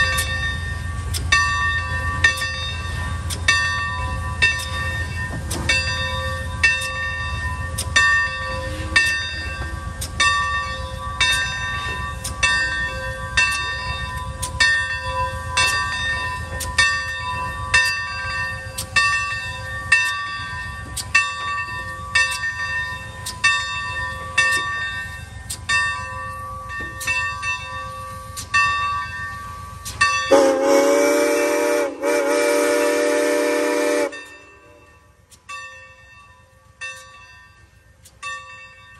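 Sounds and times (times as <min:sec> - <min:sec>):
locomotive bell ringing: 0:00.0 - 0:38.9
train rumbling: 0:00.0 - 0:38.9
locomotive whistle blast: 0:30.3 - 0:34.9.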